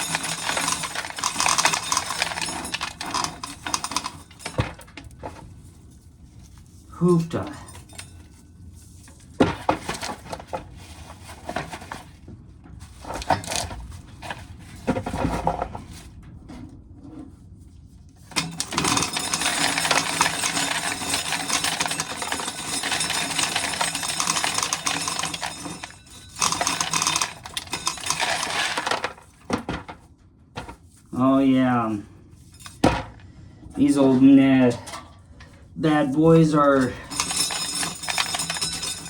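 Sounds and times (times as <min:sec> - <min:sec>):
corn kernels rattling into a can: 0:00.0 - 0:04.6, 0:18.3 - 0:29.3, 0:36.8 - 0:39.0.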